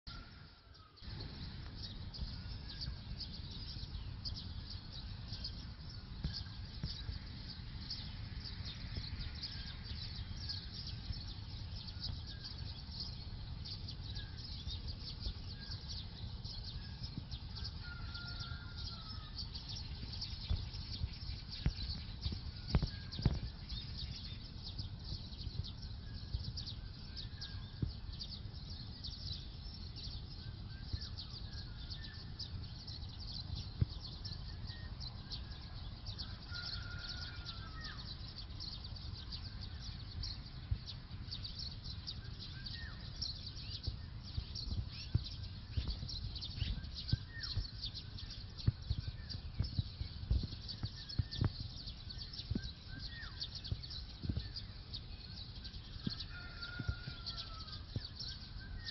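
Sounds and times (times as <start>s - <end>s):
steady low rumble: 0.0s - 18.1s, 18.7s - 36.5s, 37.6s - 56.2s
birds chirping: 0.0s - 58.9s
whistled bird calls: 36.2s - 38.0s, 50.9s - 54.8s, 56.1s - 58.9s.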